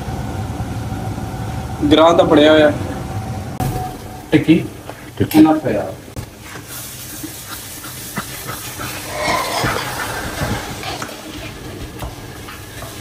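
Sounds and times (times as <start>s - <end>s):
food sizzling in a pot: 6.4s - 13.0s.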